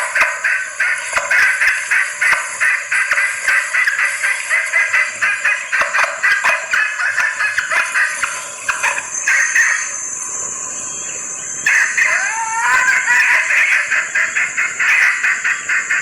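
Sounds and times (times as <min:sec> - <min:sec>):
hen clucking rapidly: 0:00.0 - 0:10.1, 0:11.0 - 0:16.0
high-pitched hum: 0:08.1 - 0:13.9.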